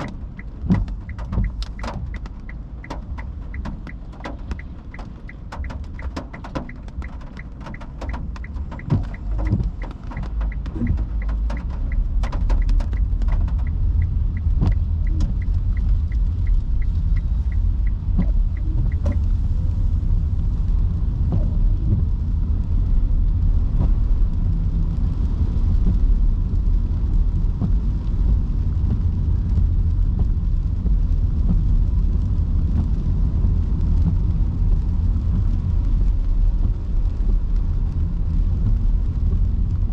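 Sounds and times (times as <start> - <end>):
turn signal ticking: 0.0 - 19.5
rain tapping on car: 0.0 - 39.9
tyre and road rumble: 0.0 - 39.9.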